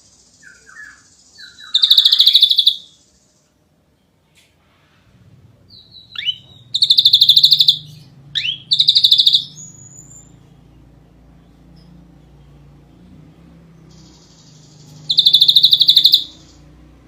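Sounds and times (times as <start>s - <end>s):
bird singing trills and whistles: 0.0s - 3.4s, 5.7s - 10.4s, 13.8s - 16.7s
faint low hum: 0.0s - 17.0s.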